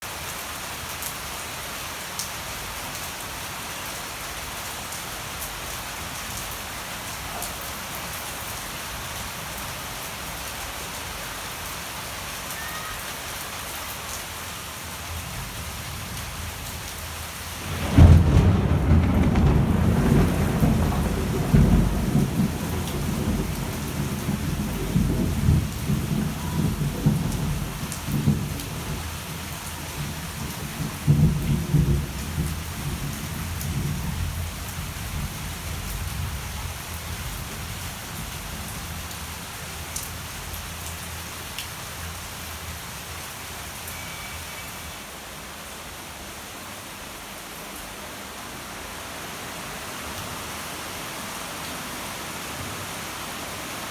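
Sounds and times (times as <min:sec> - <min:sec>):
steady rain falling: 0:00.0 - 0:53.9
thunder crack and rumble: 0:15.2 - 0:39.2.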